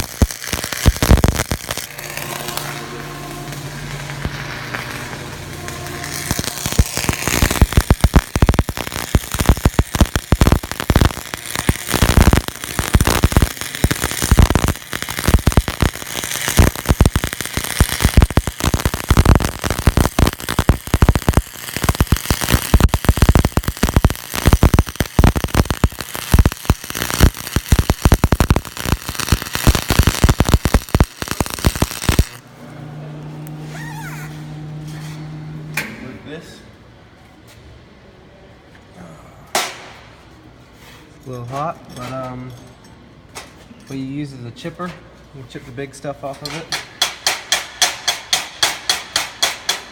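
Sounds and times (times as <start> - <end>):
welding arc crackling and popping: 0.0 - 32.4.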